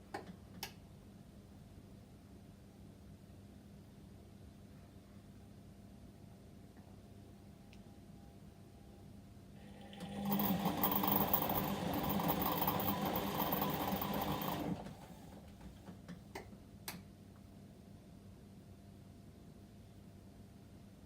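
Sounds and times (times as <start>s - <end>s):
washing machine whirring: 9.6s - 16.2s.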